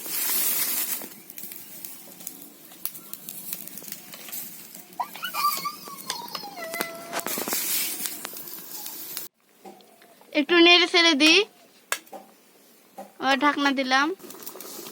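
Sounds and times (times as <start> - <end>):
cat meowing: 5.0 - 7.5.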